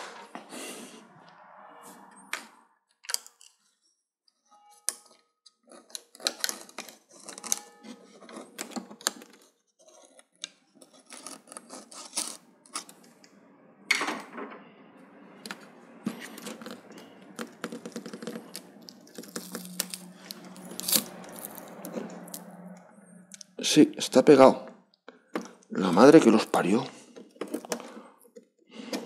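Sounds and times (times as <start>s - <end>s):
plastic parts clicking and scraping: 2.3s - 3.8s, 4.8s - 13.4s, 15.4s - 22.4s, 27.0s - 29.0s.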